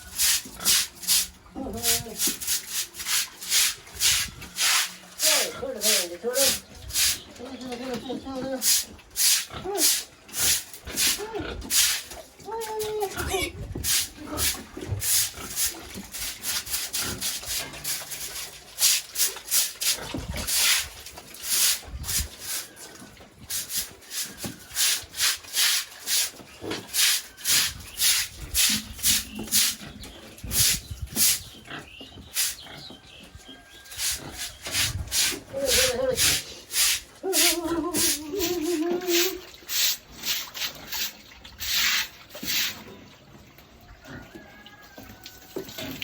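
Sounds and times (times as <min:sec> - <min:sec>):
short scraping strokes: 0:02.2 - 0:05.0, 0:34.0 - 0:38.2.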